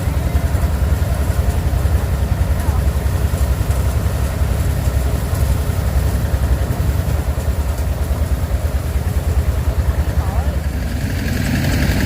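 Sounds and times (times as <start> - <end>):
engine chugging steadily: 0.0 - 12.0.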